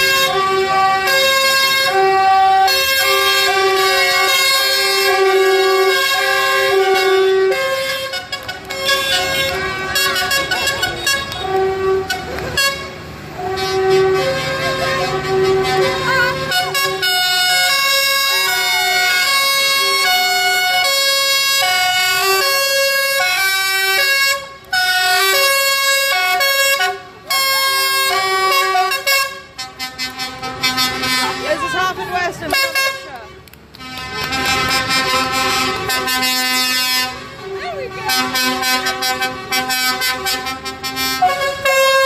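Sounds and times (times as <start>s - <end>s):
engine running low: 0.0s - 42.0s
loud tune from vehicle: 0.0s - 42.0s.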